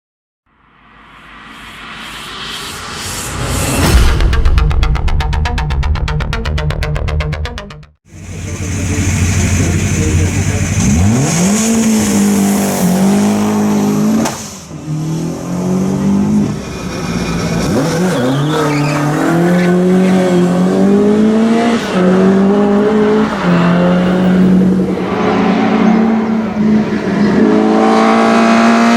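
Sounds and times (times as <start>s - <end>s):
rally car engine accelerating: 8.1s - 28.9s.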